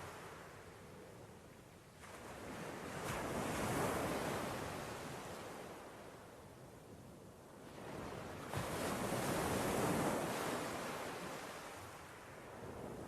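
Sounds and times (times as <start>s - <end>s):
sea waves breaking on shore: 7.6s - 13.0s.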